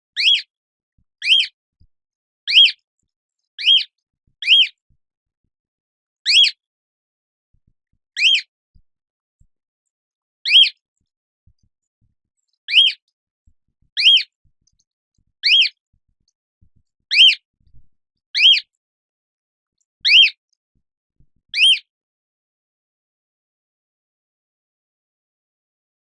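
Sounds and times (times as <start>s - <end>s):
cockatoo shrill calls: 0.2s - 0.5s, 1.2s - 1.5s, 2.5s - 2.8s, 3.6s - 4.7s, 6.3s - 6.6s, 8.2s - 8.5s, 10.5s - 10.8s, 12.7s - 13.0s, 14.0s - 14.3s, 15.4s - 15.7s, 17.1s - 17.4s, 18.4s - 18.6s, 20.1s - 20.4s, 21.6s - 21.8s.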